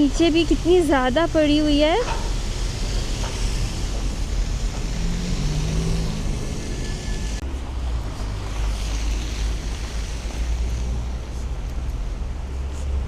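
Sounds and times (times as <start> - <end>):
wind buffeting microphone: 0.0 - 12.6
low wind rumble: 0.0 - 13.0
rushing hiss: 0.0 - 13.0.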